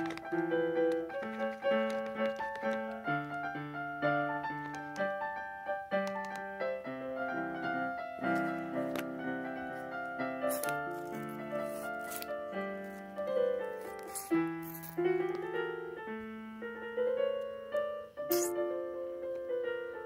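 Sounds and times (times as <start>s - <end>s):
piano melody: 0.0s - 20.0s.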